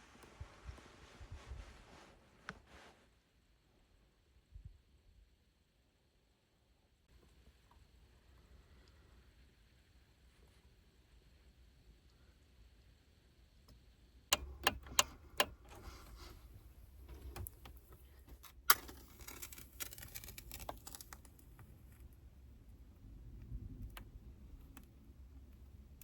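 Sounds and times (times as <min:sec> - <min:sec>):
sharp clicks: 0:14.3 - 0:21.6
rustling: 0:14.3 - 0:26.0.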